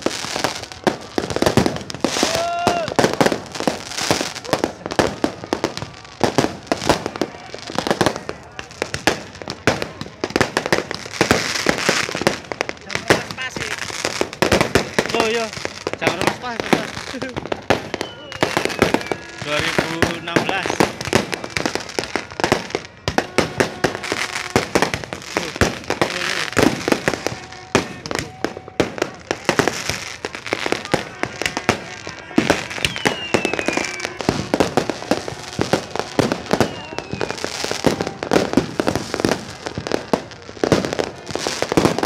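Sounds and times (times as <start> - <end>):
fireworks bangs and crackles: 0.0 - 42.0
falling firework whistles: 17.4 - 42.0.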